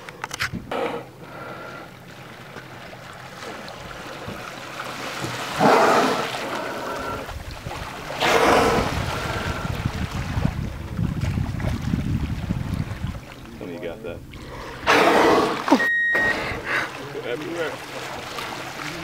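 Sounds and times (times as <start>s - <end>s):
wind rumble on microphone: 7.2s - 14.4s
orca blowing: 14.4s - 16.9s.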